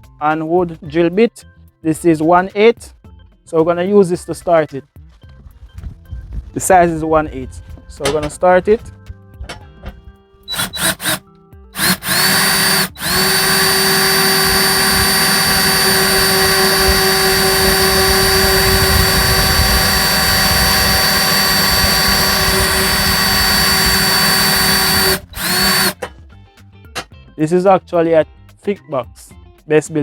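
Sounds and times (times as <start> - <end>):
power drill drilling into metal: 10.5 - 11.2, 11.8 - 26.1.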